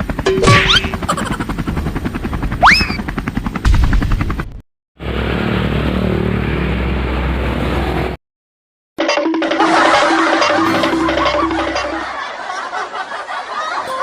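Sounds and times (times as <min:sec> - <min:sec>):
aircraft engine noise: 0:00.0 - 0:04.4, 0:05.0 - 0:08.2
helicopter rotor chopping: 0:00.0 - 0:07.4
rising whistle: 0:02.6 - 0:03.0.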